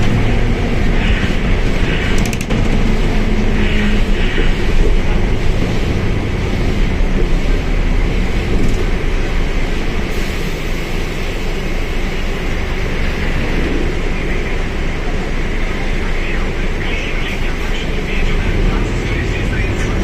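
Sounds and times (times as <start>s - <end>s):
bus diesel engine rumble: 0.0s - 20.0s
hiss: 10.1s - 12.2s.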